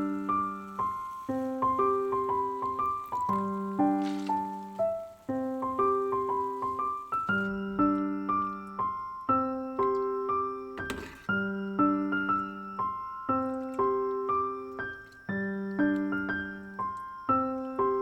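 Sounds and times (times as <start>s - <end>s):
rustling noise: 0.0s - 8.9s, 10.8s - 11.5s
gentle piano chords: 0.0s - 18.0s.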